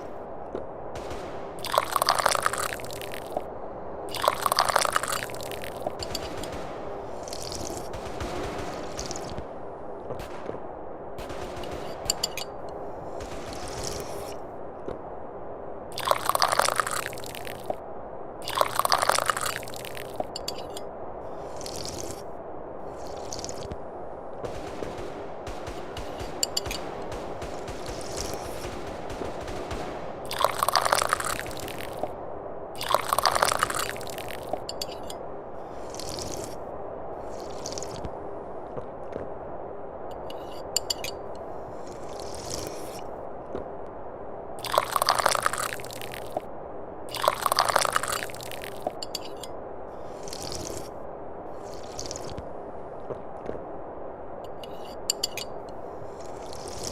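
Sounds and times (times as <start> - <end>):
background hiss: 0.0 - 56.9
tea slurping from cup: 1.6 - 3.4, 4.1 - 6.2, 16.0 - 17.7, 18.4 - 20.8, 21.4 - 22.3, 22.9 - 23.7, 30.3 - 32.1, 32.8 - 35.1, 35.7 - 36.6, 37.2 - 38.0, 41.7 - 43.0, 44.6 - 46.4, 47.1 - 49.3, 50.1 - 51.0, 51.6 - 52.4, 56.1 - 56.9.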